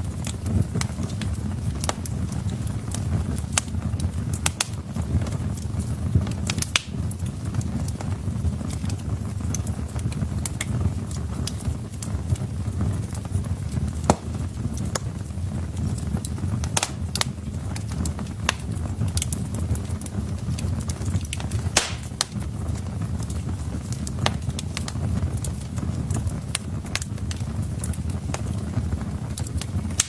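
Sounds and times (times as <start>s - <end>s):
low rumble of flames: 0.0s - 30.0s
wood fire crackling: 0.0s - 30.0s.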